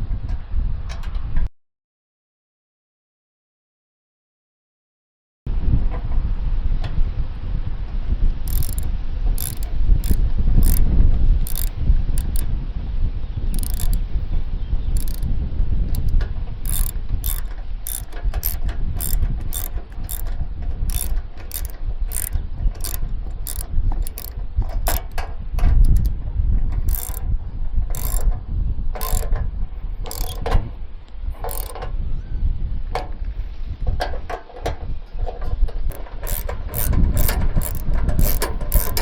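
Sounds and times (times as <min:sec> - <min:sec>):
ratchet wrench clicking: 0:08.5 - 0:12.5, 0:13.5 - 0:14.2, 0:15.0 - 0:15.3, 0:15.9 - 0:26.1, 0:26.8 - 0:27.3, 0:27.9 - 0:28.3, 0:29.0 - 0:29.3, 0:30.0 - 0:30.5, 0:31.4 - 0:31.9, 0:35.9 - 0:39.0.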